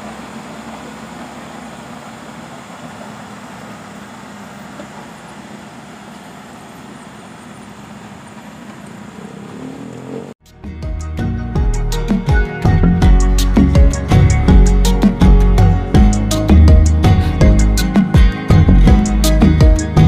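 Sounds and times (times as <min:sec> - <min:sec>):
combine harvester engine droning: 0:00.0 - 0:10.4.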